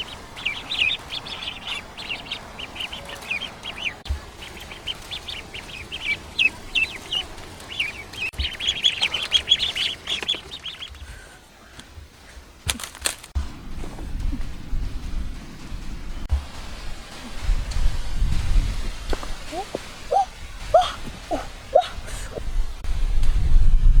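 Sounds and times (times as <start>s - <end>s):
birds chirping: 0.0s - 12.0s, 19.2s - 22.6s.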